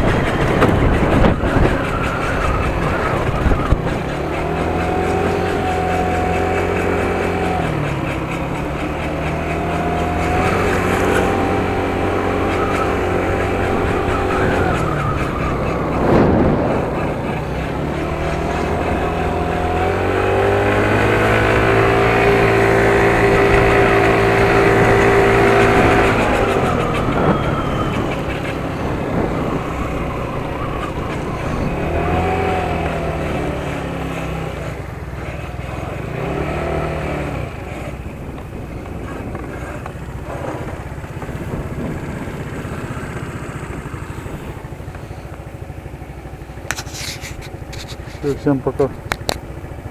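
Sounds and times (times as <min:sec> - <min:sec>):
small motorbike engine revving: 0:00.0 - 0:49.9.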